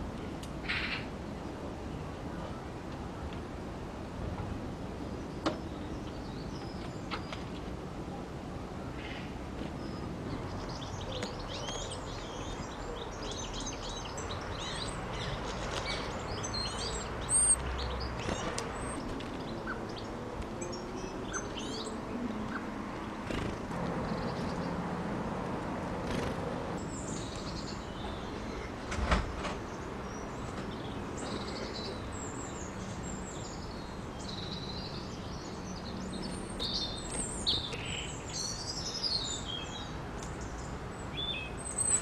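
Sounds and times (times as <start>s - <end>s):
small birds chirping: 8.9s - 24.9s, 26.0s - 28.8s, 29.6s - 42.0s.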